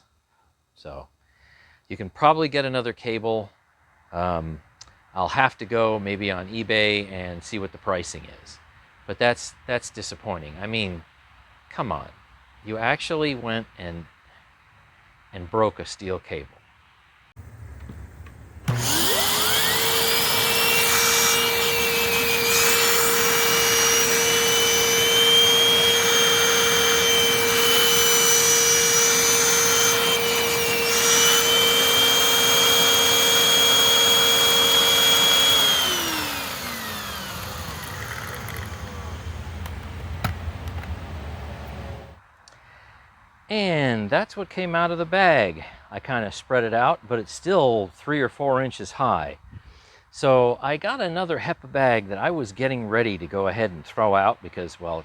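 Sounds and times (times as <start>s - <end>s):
vacuum cleaner motor whining: 17.4s - 42.2s.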